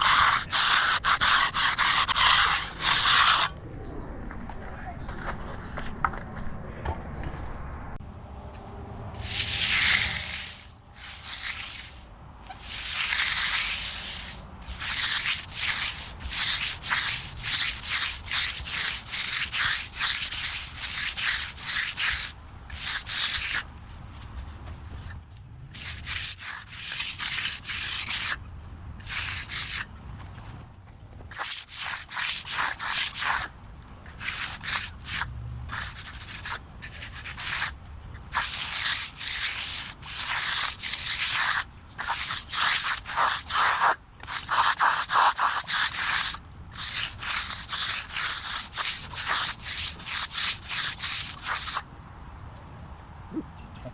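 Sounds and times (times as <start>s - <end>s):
push broom scratching concrete: 0.0s - 3.6s, 9.2s - 23.7s, 25.7s - 28.4s, 29.0s - 29.9s, 31.3s - 33.5s, 34.1s - 51.8s.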